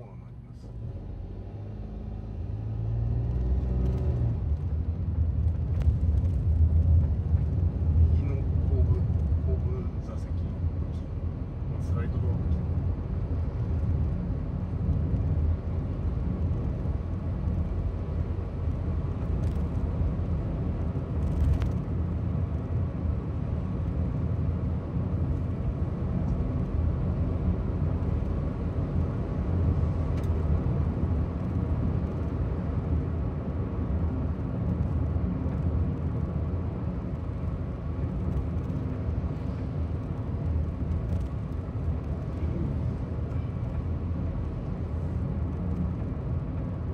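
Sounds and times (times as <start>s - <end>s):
car cabin road rumble: 0.0s - 46.9s.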